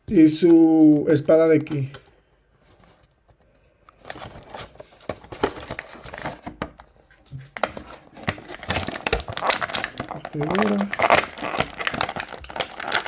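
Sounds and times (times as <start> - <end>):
plastic packaging crinkling: 3.9 - 13.0.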